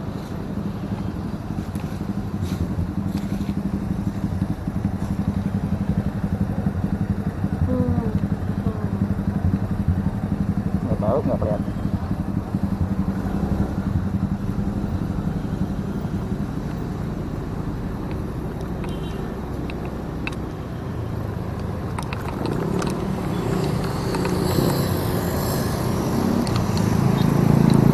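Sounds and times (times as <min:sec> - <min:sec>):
motorcycle engine running: 0:00.0 - 0:27.9.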